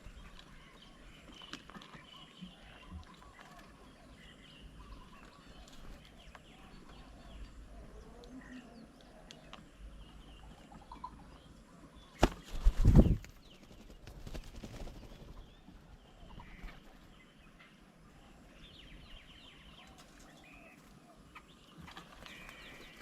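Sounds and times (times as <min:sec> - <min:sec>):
small birds chirping faintly: 0:00.0 - 0:23.0
wings fluttering close by: 0:12.2 - 0:17.2, 0:21.8 - 0:23.0.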